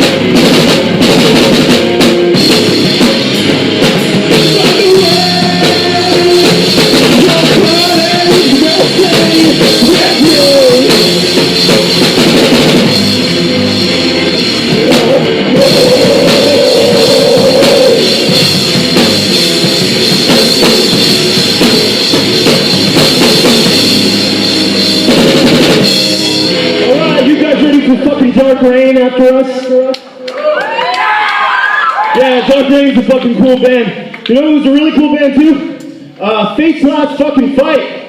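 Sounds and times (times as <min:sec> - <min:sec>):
pounding drum kit: 0:00.0 - 0:29.7
distorted electric guitars: 0:00.0 - 0:30.2.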